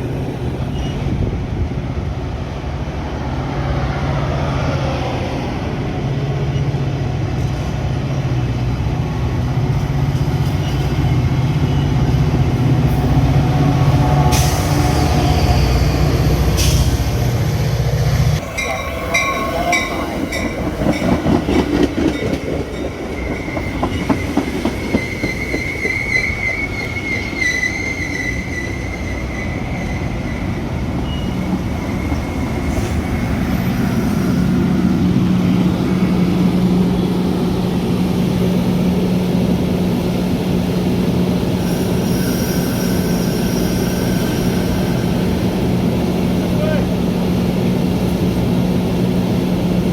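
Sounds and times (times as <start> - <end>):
high wheel squeal: 18.4 - 21.2, 22.8 - 34.4, 41.6 - 45.2
train wheels clicking over rail joints: 19.8 - 28.5.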